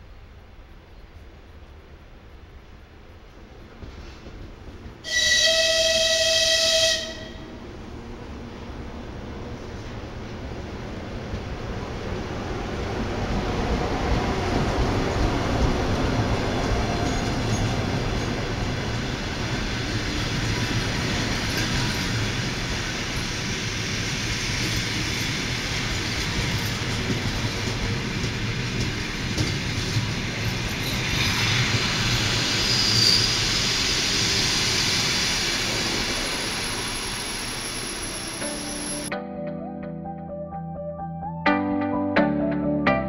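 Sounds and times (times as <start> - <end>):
train wheels rumbling and clacking: 3.2 - 5.7, 7.0 - 39.1
high-pitched squeal: 30.6 - 39.1.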